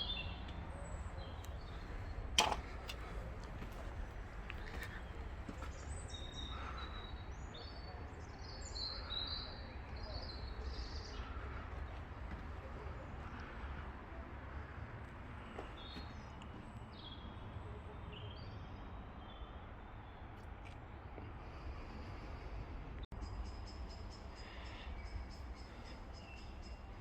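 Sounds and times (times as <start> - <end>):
small birds chirping: 0.0 - 22.4, 23.2 - 27.0.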